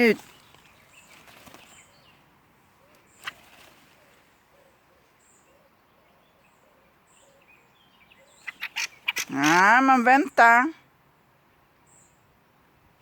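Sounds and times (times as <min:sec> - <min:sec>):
faint high bird chirps: 0:02.8 - 0:09.3.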